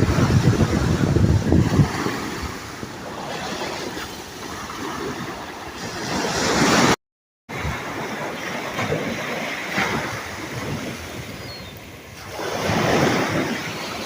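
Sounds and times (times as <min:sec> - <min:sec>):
wind buffeting microphone: 0:00.0 - 0:06.8, 0:07.5 - 0:14.0
sea waves washing: 0:00.0 - 0:14.0.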